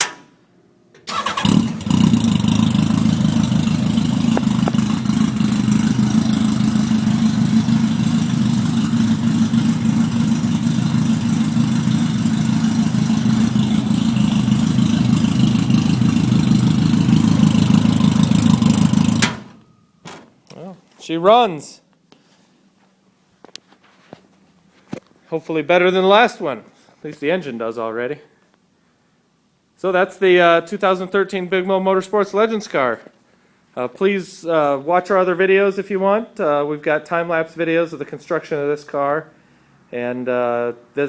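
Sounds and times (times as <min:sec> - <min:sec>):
motorcycle engine idling: 0:01.1 - 0:19.6.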